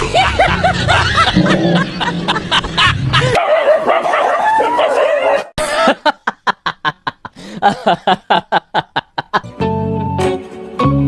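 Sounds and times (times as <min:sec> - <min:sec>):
dog barking rapidly: 0:03.4 - 0:05.6.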